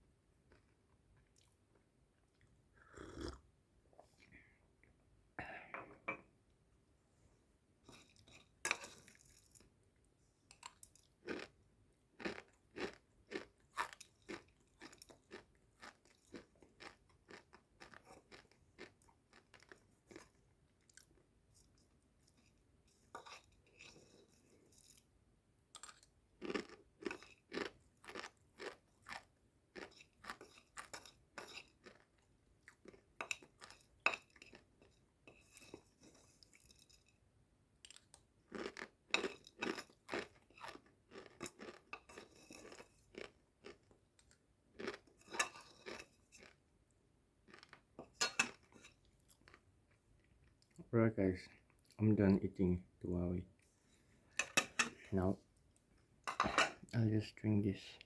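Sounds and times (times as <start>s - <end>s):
crunchy chewing of dry snack: 10.6s - 25.1s, 25.8s - 37.2s, 37.8s - 50.8s.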